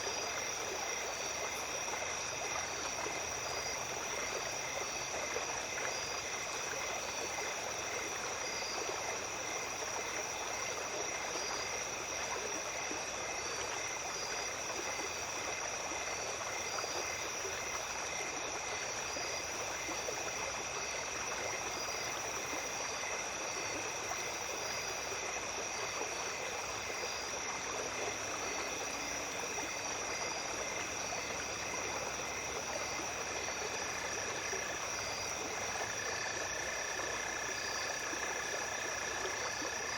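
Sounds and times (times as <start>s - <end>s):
insects trilling and chirping: 0.0s - 39.9s
stream babbling: 0.0s - 39.9s.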